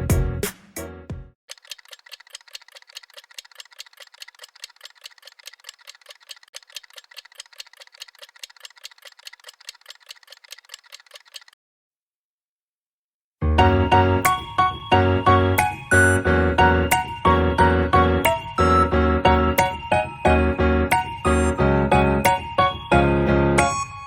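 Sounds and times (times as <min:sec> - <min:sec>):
steady sharp ticking: 0:01.5 - 0:11.6.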